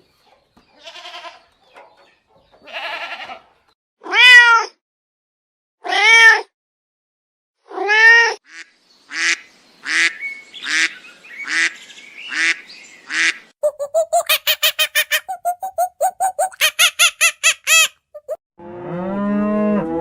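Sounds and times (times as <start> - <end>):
cat meowing: 2.7 - 3.4
rapid short calls: 13.6 - 18.3.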